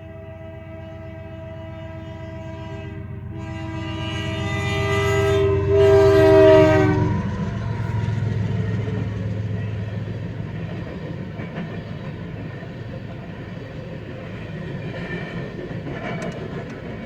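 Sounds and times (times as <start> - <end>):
locomotive air horn blasts: 0.0 - 8.2
diesel engines rumbling: 3.1 - 14.8.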